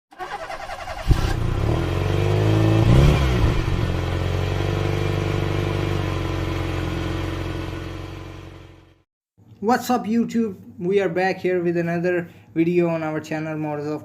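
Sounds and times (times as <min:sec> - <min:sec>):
car engine starting and idling: 0:00.1 - 0:09.0.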